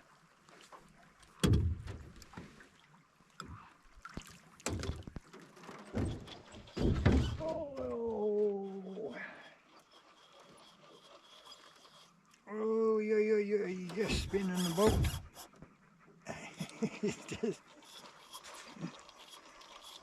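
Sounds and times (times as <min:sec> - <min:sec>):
heavy thumps in boat: 0:01.4 - 0:02.6, 0:04.6 - 0:05.2, 0:05.9 - 0:07.6, 0:14.0 - 0:15.4.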